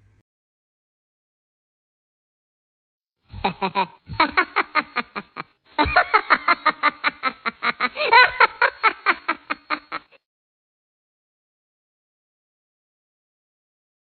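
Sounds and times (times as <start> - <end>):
person laughing in rapid pulses: 3.3 - 10.2.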